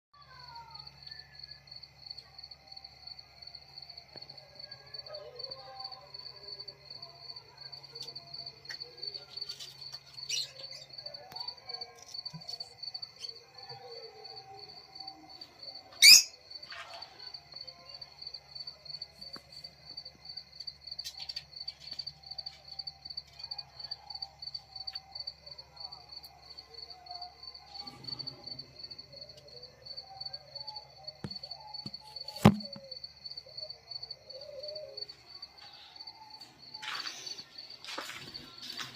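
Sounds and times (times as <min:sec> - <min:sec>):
lovebird chirp: 0:09.4 - 0:11.1, 0:16.0 - 0:16.9
lovebird sharp call: 0:16.0 - 0:16.4.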